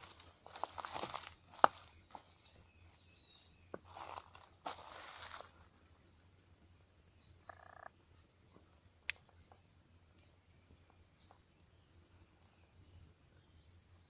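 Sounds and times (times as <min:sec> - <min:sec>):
frogs calling: 0:07.3 - 0:09.6
buzzy frog croak: 0:07.4 - 0:08.0.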